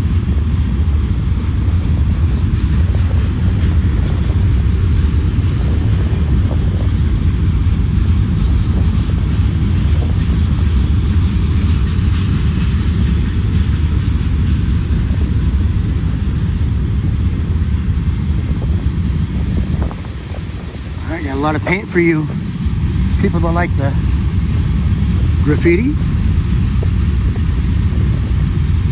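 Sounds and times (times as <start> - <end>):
freight train cars rumbling past: 0.0 - 28.9.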